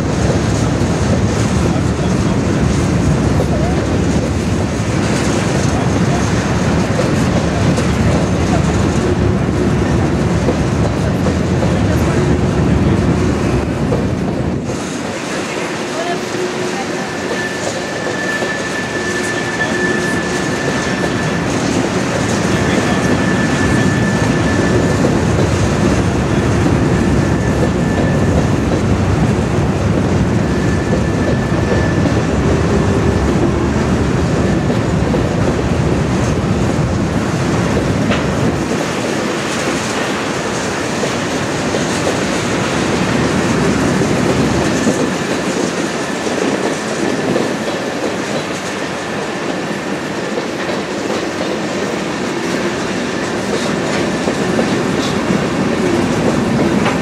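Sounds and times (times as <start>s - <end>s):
freight train wheels rumbling: 0.0s - 57.0s
faint high wheel squeal: 16.9s - 21.5s, 22.5s - 25.0s, 30.4s - 32.8s.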